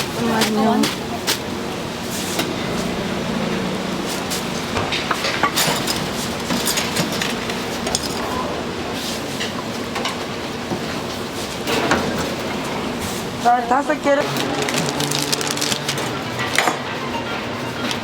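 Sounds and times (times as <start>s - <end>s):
busy food stall background: 0.0s - 18.0s
utensils and dishes clinking: 4.2s - 8.5s, 14.2s - 18.0s.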